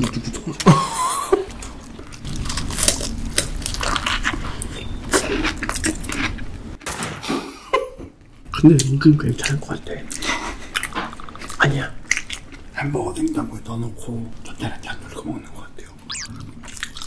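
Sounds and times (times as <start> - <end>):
biting and chewing icy food: 1.5 - 6.4.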